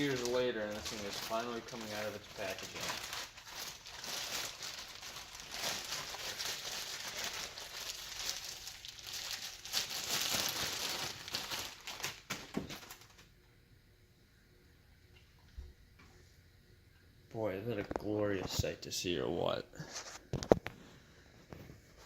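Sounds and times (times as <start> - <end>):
packaging crinkling and rustling: 0.0 - 13.3.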